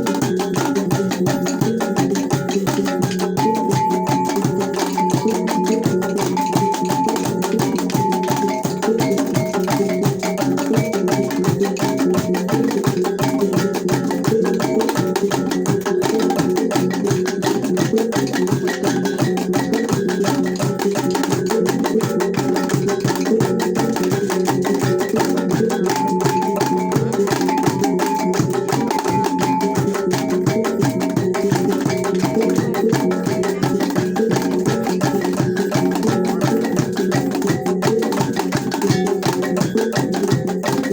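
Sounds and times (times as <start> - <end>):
wooden percussive beat: 0.0 - 40.9
repeating pitched melody: 2.8 - 11.0.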